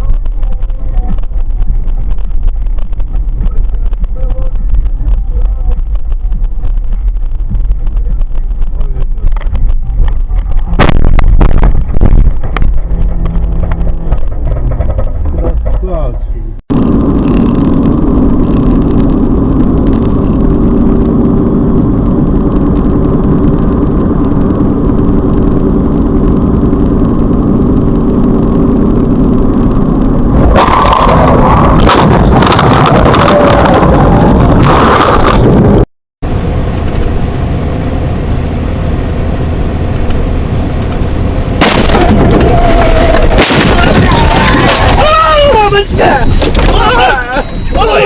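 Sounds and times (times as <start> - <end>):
car engine and road noise: 0.0 - 48.0
low hum: 0.0 - 48.0
loud noisy burst: 16.7 - 48.0
car crash impacts: 41.6 - 45.4.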